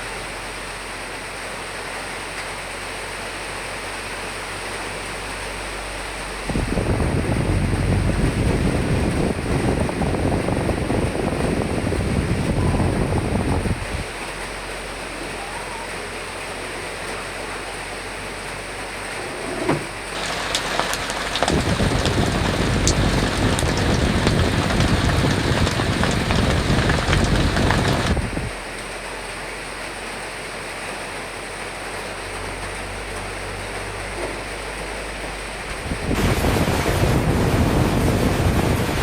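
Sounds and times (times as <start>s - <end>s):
steady hiss of rain: 0.0s - 39.0s
wind: 0.0s - 39.0s
raindrops tapping: 6.4s - 13.8s, 19.7s - 28.9s, 34.8s - 39.0s
low rumble: 20.2s - 28.5s.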